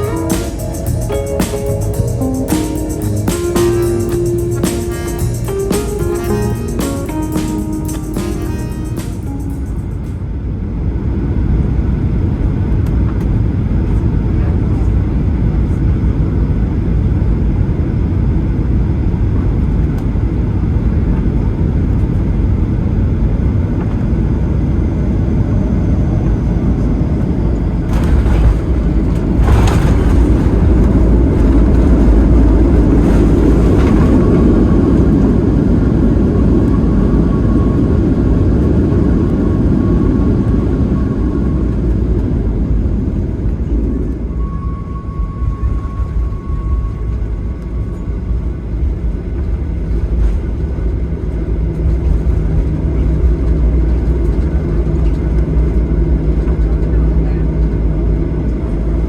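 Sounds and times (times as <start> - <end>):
faint high tone: 0.0 - 10.2
airplane cabin engine rumble: 0.0 - 59.0.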